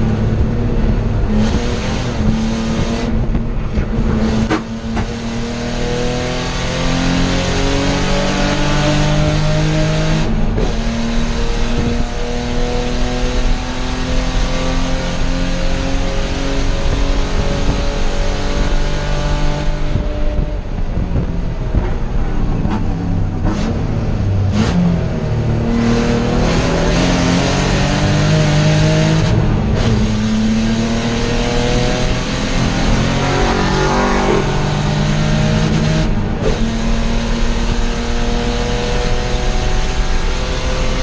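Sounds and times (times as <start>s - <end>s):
race car engine revving: 0.0s - 41.0s.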